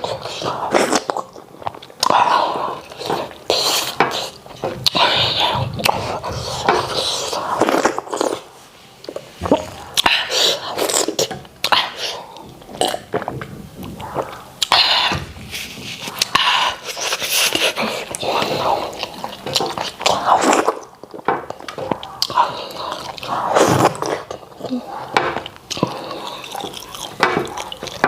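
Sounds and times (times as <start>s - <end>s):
mouth clicks and slurps: 0.0s - 28.0s
wet chewing and lip-smacking: 25.4s - 28.0s.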